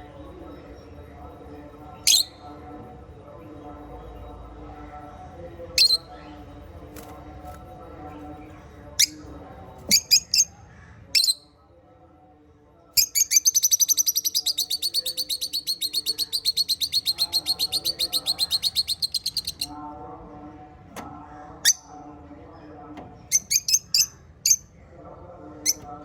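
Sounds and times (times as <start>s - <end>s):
parrots chirping: 13.0s - 19.7s, 23.3s - 24.6s
low chattering: 13.0s - 26.0s.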